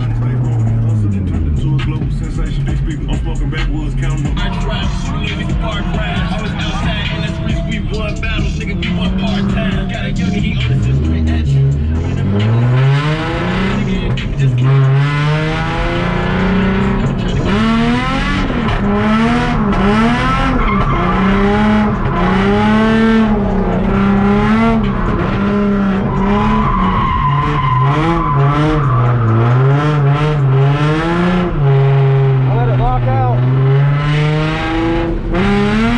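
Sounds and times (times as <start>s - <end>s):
car engine revving: 0.0s - 35.9s
tyres squealing: 17.6s - 30.7s.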